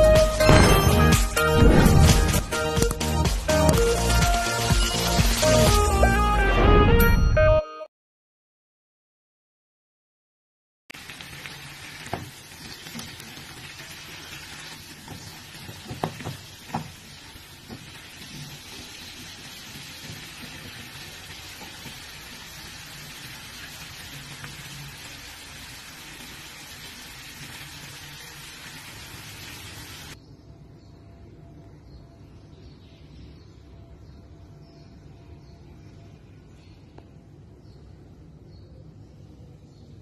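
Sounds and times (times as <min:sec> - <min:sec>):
vegetables sizzling in a wok: 0:04.1 - 0:05.9, 0:10.9 - 0:30.2.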